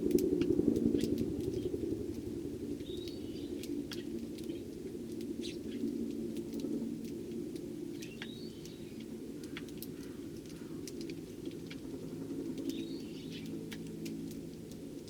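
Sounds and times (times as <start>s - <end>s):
steady low hum: 0.0s - 15.0s
sparrows chirping: 2.8s - 4.7s, 5.4s - 5.9s, 7.9s - 11.0s, 12.2s - 14.5s.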